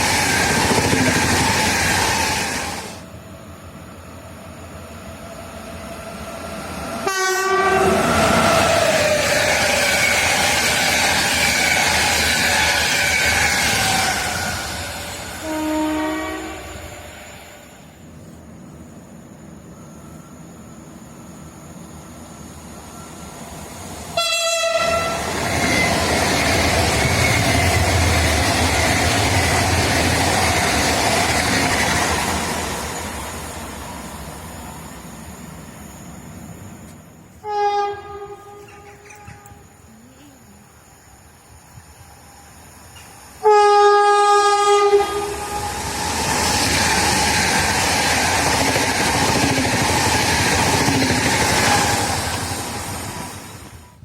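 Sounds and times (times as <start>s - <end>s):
train wheels rumbling on rails: 0.0s - 54.0s
train horn blast: 7.0s - 8.3s, 15.3s - 16.8s, 24.2s - 25.3s, 37.4s - 39.8s, 43.4s - 45.8s.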